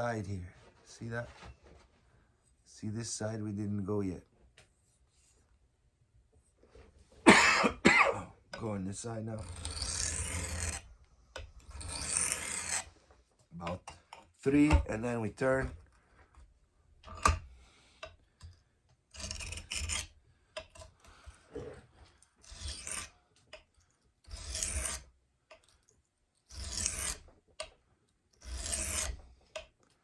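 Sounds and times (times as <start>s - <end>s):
knife rasping on whetstone: 9.4s - 12.9s, 19.1s - 20.9s, 22.4s - 23.1s, 24.2s - 25.1s, 26.5s - 27.3s, 28.4s - 29.2s.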